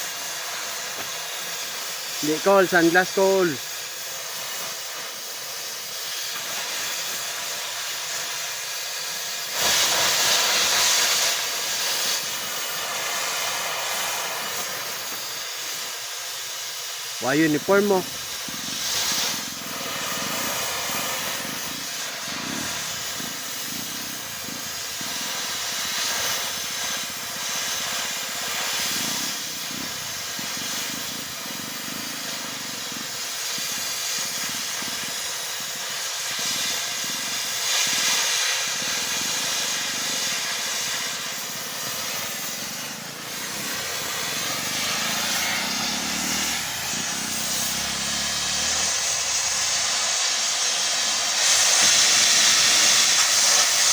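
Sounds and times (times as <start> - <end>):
continuous hissing noise: 0.0 - 53.9.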